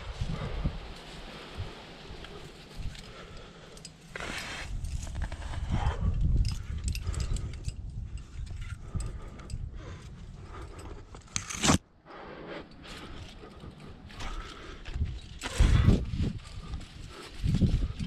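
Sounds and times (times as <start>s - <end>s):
climbing gear clinking: 2.2s - 11.8s, 12.6s - 18.0s
clothing scraping against rock: 4.1s - 6.0s.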